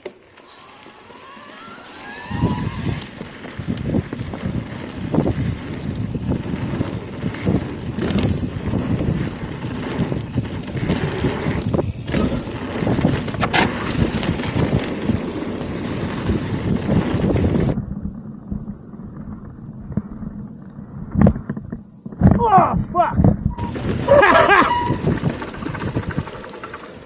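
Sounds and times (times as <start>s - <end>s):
tyres rumbling on dirt: 0.3s - 20.5s, 23.5s - 27.0s
wind buffeting microphone: 2.2s - 27.0s
bike knocks and rattles: 3.1s - 17.8s, 23.5s - 27.0s.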